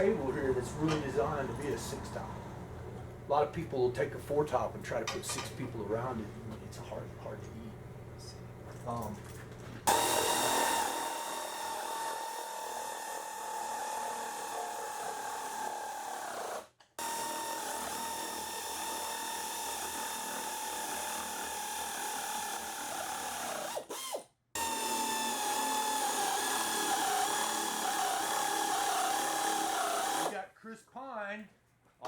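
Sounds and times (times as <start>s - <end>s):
power drill driving fasteners: 9.9s - 30.4s.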